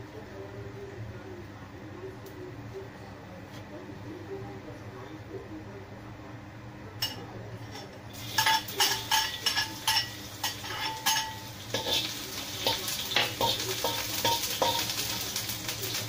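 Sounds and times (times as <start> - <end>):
metal clanks against wok: 7.0 - 16.0
spatula scraping wok: 7.6 - 16.0
garlic sizzling in wok: 8.1 - 16.0.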